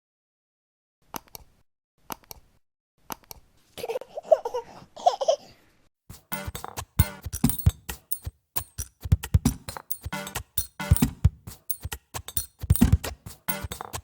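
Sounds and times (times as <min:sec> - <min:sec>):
baby babbling and laughing: 0:03.8 - 0:05.5
music with a beat: 0:06.1 - 0:14.0.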